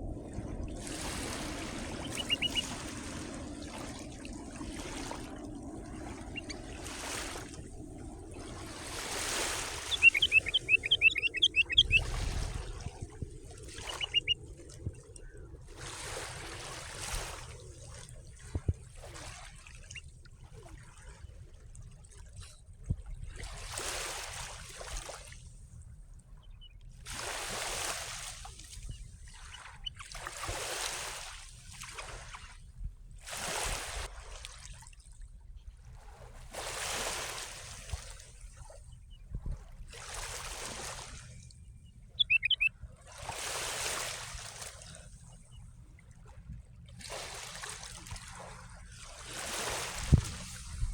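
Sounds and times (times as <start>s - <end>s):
steady low rumble: 0.0s - 14.3s
small waves washing on shore: 0.0s - 25.9s, 27.0s - 41.6s, 42.2s - 50.9s
bird chirping sharply: 2.0s - 2.7s, 6.3s - 6.6s, 9.7s - 12.1s, 13.8s - 14.4s, 42.2s - 42.7s.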